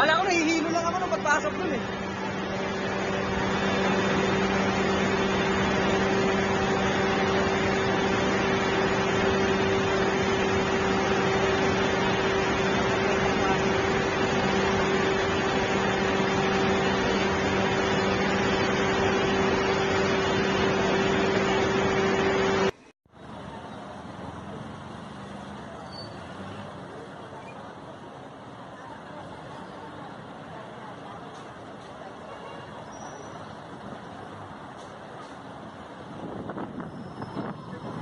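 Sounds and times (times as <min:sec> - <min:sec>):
machine hum with rushing noise: 0:00.0 - 0:23.5.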